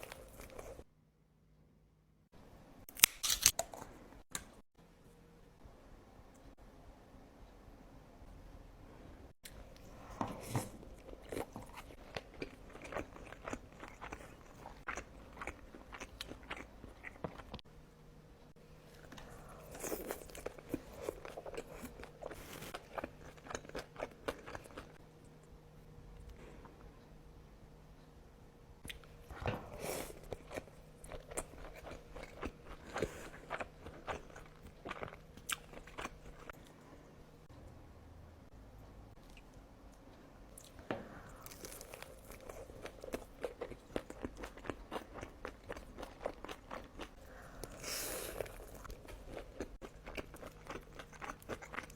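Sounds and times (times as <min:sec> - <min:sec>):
chewing with crunchy bites: 0:09.5 - 0:17.6, 0:18.9 - 0:25.6, 0:28.9 - 0:36.8, 0:39.2 - 0:51.9.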